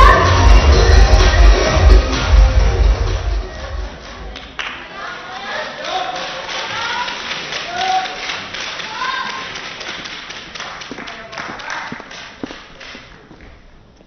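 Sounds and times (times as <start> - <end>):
arena music with heavy beat: 0.0 - 4.4
crowd noise: 0.0 - 14.0
people clapping: 4.0 - 13.6.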